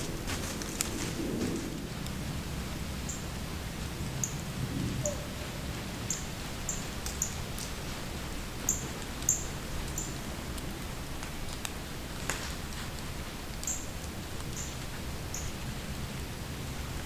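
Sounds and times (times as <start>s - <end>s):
low steady rumble: 0.0s - 17.0s
bird high-pitched call notes: 5.0s - 7.3s
faint ticks: 6.1s - 7.8s.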